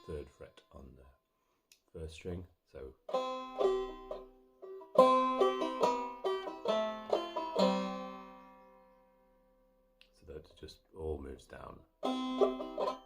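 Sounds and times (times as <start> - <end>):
banjo plucked notes: 0.0 - 1.0, 3.0 - 9.1, 12.0 - 13.0.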